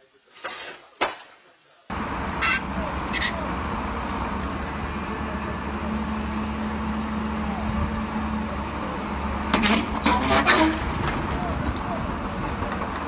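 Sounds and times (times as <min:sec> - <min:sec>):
vehicle engine running: 0:01.9 - 0:10.3
harsh scraping noise: 0:09.6 - 0:11.2.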